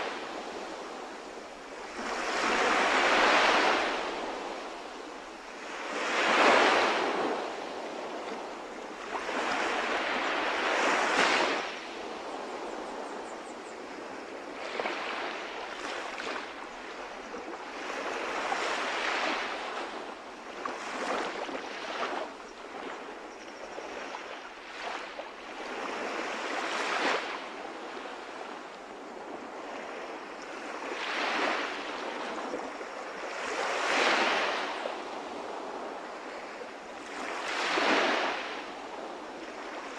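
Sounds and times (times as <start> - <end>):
sea waves washing onto shore: 0.0 - 12.8.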